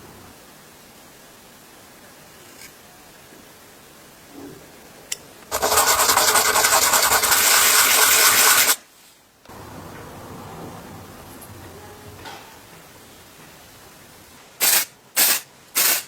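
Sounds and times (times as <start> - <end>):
harsh rasping rubbing: 5.5 - 8.8.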